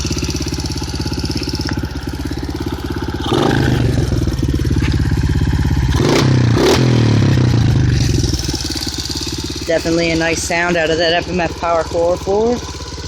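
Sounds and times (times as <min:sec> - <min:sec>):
exhaust cracks: 0:00.0 - 0:13.0
motorcycle engine idling and revving: 0:00.0 - 0:13.0.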